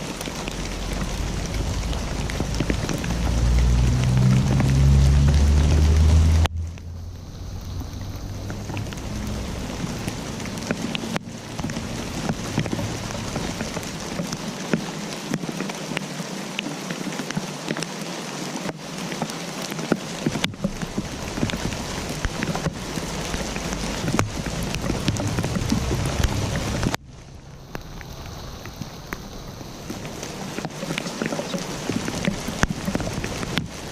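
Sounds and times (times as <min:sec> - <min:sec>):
rain drops ticking on surface: 0:00.0 - 0:33.9.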